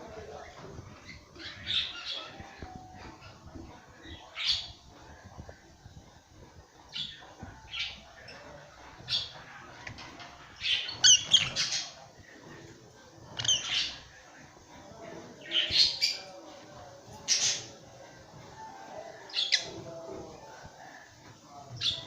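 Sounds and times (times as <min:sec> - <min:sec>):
lovebirds squawking: 0:10.6 - 0:11.8.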